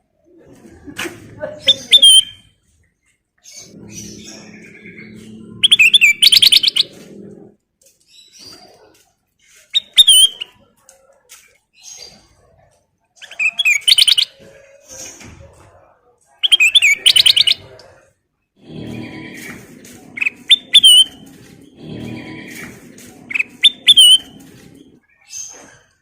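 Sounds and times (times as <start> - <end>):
songbird warbling chirps and trills: 3.4 - 7.4, 13.2 - 14.4, 16.4 - 17.8, 20.1 - 22.7, 23.3 - 25.6.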